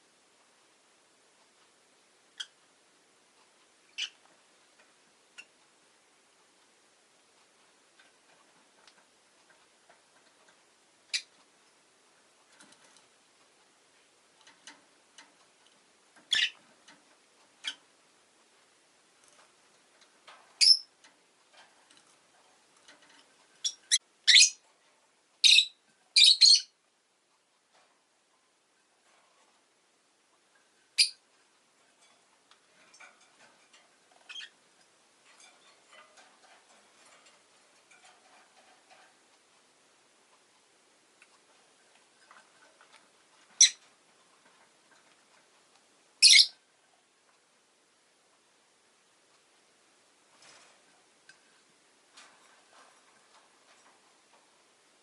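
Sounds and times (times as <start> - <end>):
faint clicks and ticks: 0.0 - 26.2, 26.8 - 55.0
faint background hiss: 0.0 - 55.0
lovebird ticks and chirps: 2.3 - 2.6, 3.4 - 5.8, 11.0 - 11.6, 14.5 - 17.9, 20.6 - 21.0, 23.2 - 24.6, 25.4 - 26.8, 30.9 - 31.2, 34.1 - 36.1, 42.0 - 43.9, 46.2 - 46.6
lovebird chirping: 3.9 - 4.2, 11.1 - 11.3, 16.3 - 16.6, 20.6 - 20.9, 23.6 - 24.6, 25.4 - 26.8, 31.0 - 31.2, 34.2 - 34.6, 43.6 - 43.8, 46.2 - 46.6.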